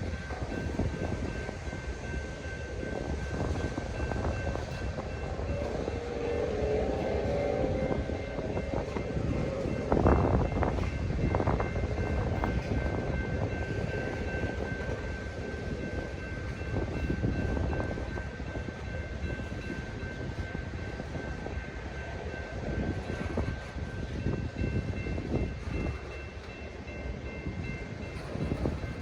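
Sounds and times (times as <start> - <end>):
freight train rumbling: 0.0 - 29.0.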